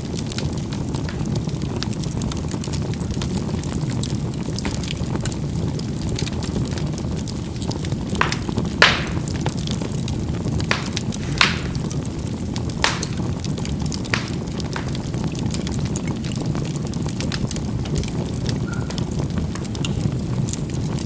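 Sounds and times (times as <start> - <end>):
charcoal bursting pops: 0.0 - 21.0
charcoal fire rumbling and crackling: 0.0 - 21.0.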